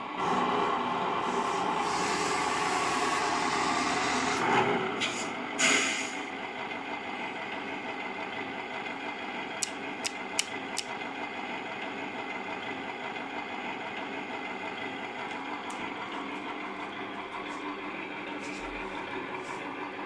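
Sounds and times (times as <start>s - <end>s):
simulated diesel engine idling: 0.0s - 20.0s
sharp clicks: 9.6s - 11.0s.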